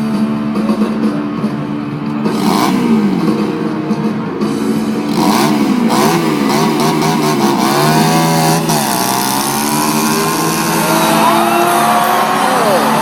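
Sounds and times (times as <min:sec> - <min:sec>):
small motorcycle engine revving: 0:02.2 - 0:03.9, 0:04.7 - 0:13.0.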